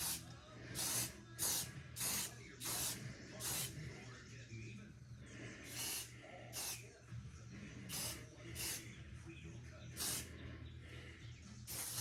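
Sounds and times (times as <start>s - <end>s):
aerosol can spraying: 0.0s - 0.2s, 0.8s - 3.8s, 5.7s - 6.8s, 7.9s - 8.8s, 10.0s - 10.3s, 11.7s - 12.0s.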